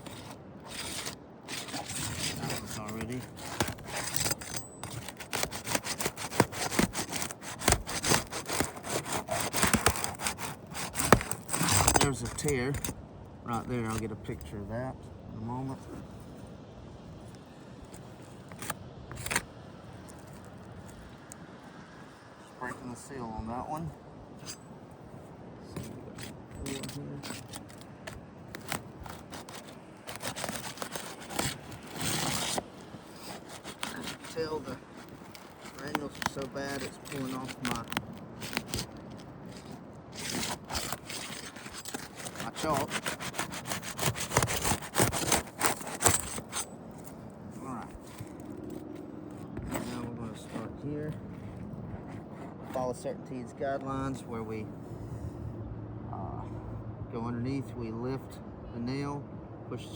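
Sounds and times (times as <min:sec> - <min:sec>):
roof shingles crackling and snapping: 0:00.0 - 0:12.9, 0:26.2 - 0:47.3.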